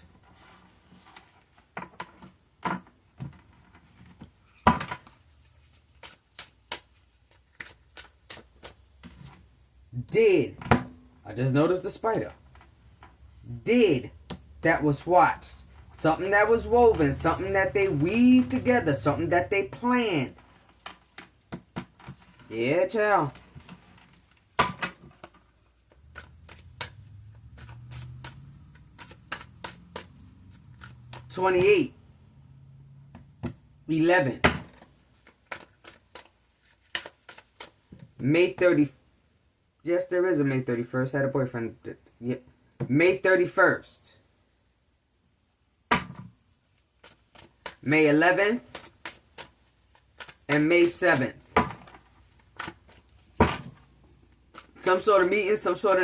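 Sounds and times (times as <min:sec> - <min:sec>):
cards clicking and tapping: 0:24.5 - 0:31.7, 0:34.6 - 0:38.1, 0:47.0 - 0:53.8.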